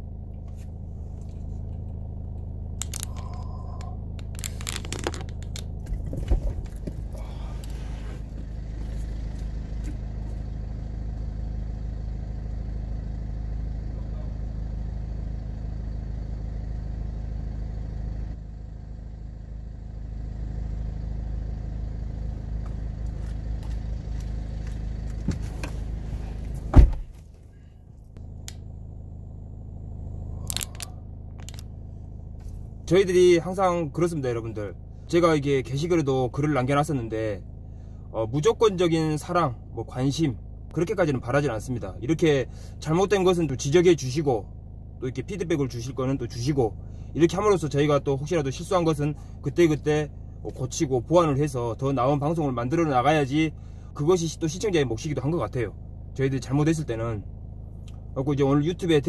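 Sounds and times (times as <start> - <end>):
vehicle engine idling: 0.0 - 59.0
loud thump: 26.7 - 27.2.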